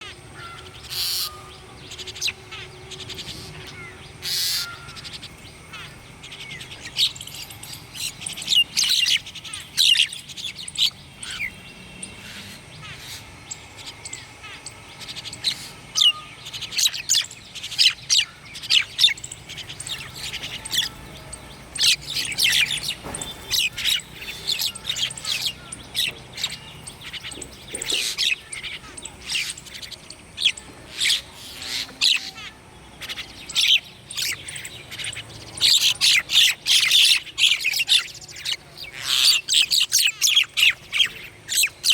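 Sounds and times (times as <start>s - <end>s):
faint background hum: 0.0s - 41.9s
songbirds chirping: 0.0s - 41.9s.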